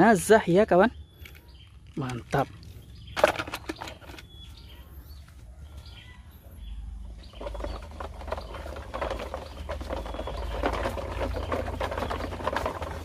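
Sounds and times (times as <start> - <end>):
faint bird chirps: 0.2 - 12.4
toy truck wheels rolling over dirt: 1.3 - 4.4, 7.2 - 13.0.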